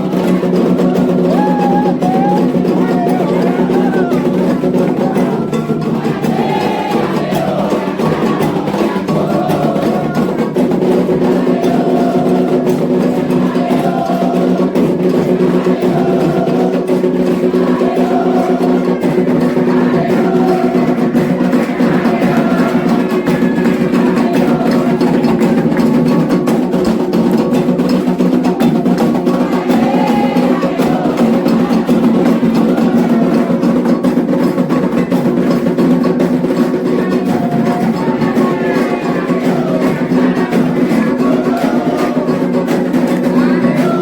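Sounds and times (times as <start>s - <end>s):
hand drums: 0.0s - 44.0s
sharp struck percussion: 0.0s - 44.0s
voices singing: 0.0s - 44.0s.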